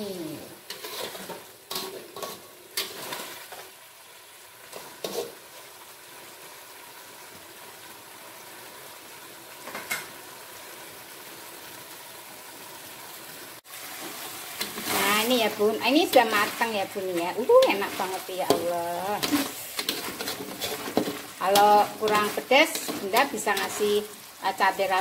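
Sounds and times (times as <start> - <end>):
food sizzling in a wok: 0.0 - 25.0
metal spatula scraping a pan: 0.6 - 3.7, 4.6 - 5.6, 14.0 - 24.2.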